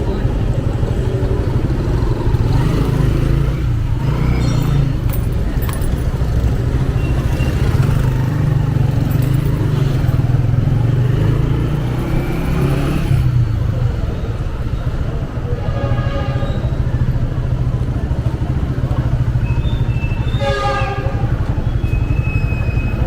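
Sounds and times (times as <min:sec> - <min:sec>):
motorcycle engine rumbling: 0:00.0 - 0:23.0
road traffic: 0:00.0 - 0:23.0.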